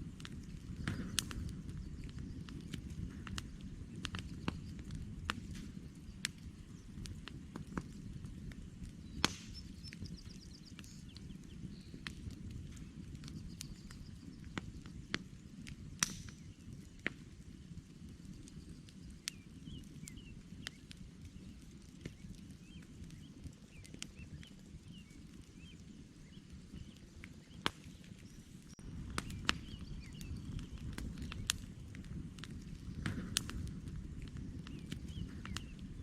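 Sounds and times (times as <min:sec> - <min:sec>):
campfire crackling and popping: 0:00.0 - 0:36.0
fire rushing: 0:00.0 - 0:36.0
faint bird chirps: 0:09.0 - 0:12.1.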